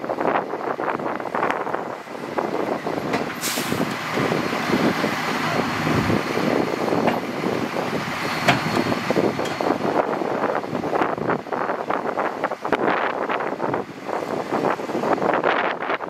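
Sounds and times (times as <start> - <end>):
diesel truck running: 0.0 - 16.0
air hiss: 3.4 - 3.9.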